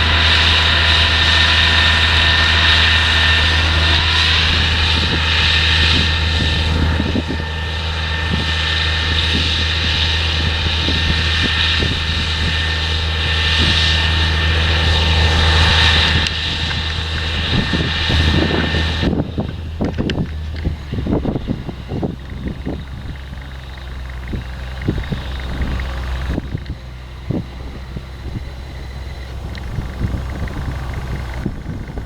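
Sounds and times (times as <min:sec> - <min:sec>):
diesel engine running under load: 0:00.0 - 0:32.0
machinery rattles and knocks: 0:16.1 - 0:28.1
high hiss: 0:18.1 - 0:19.0.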